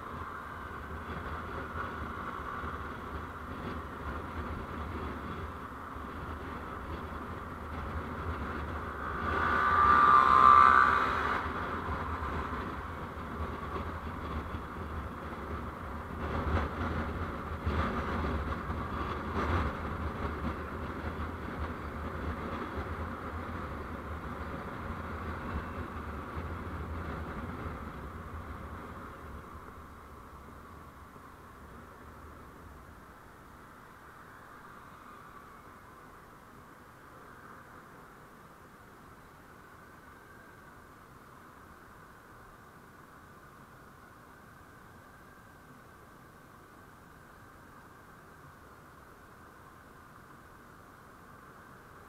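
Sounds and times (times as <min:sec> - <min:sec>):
road and traffic noise: 0:00.0 - 0:52.0
something passing close by: 0:08.7 - 0:13.0.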